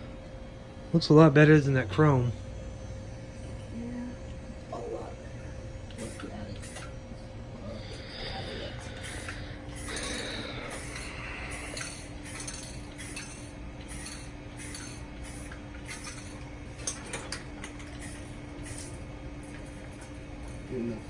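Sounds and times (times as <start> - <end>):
steady low hum: 0.0 - 21.0
spray can ball rattling: 10.8 - 17.0, 17.6 - 20.1.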